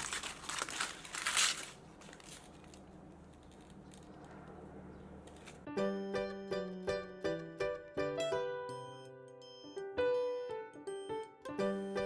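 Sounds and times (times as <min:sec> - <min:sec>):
crinkling and tearing: 0:00.0 - 0:04.6
plucked-string music: 0:05.7 - 0:12.0.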